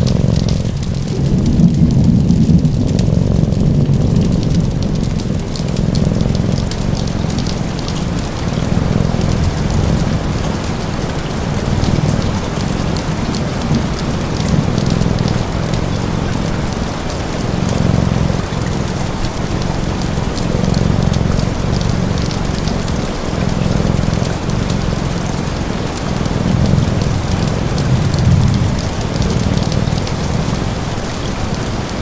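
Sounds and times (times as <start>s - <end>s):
low rumble: 0.0s - 30.6s
small fire crackles: 0.0s - 32.0s
steady rain: 0.0s - 32.0s.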